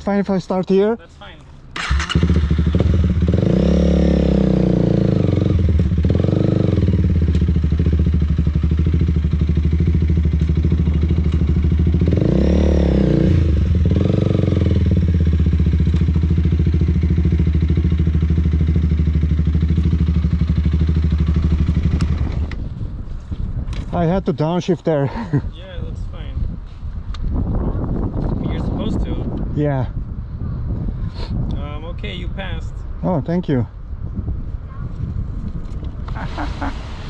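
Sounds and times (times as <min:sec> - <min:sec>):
motorcycle engine revving through gears: 0:01.8 - 0:22.6.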